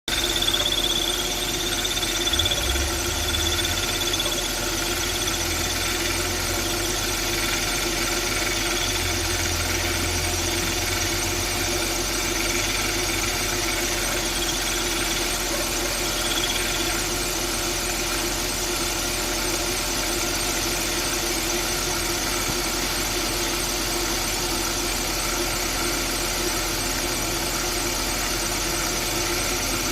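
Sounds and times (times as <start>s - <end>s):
high squeal: 0.1s - 7.6s
car engine running: 0.1s - 29.9s.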